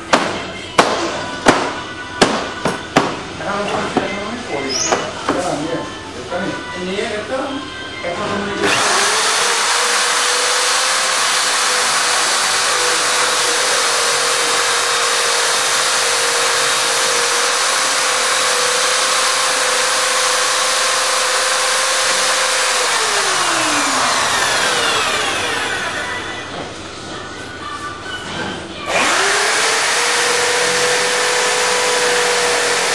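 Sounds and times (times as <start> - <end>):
electric drill motor whine: 8.6 - 26.6, 28.9 - 32.9
harsh milling cutting noise: 8.6 - 26.6, 28.9 - 32.9.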